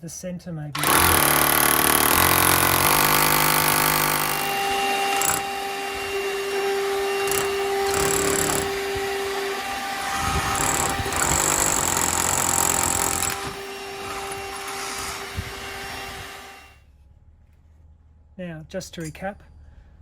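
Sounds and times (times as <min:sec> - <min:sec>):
power drill drilling into brick: 0:00.8 - 0:16.8.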